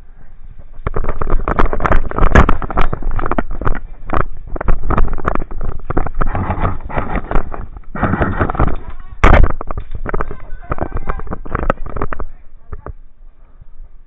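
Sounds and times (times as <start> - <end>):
rustling on microphone: 0.0 - 14.0
wind noise on microphone: 0.0 - 14.0.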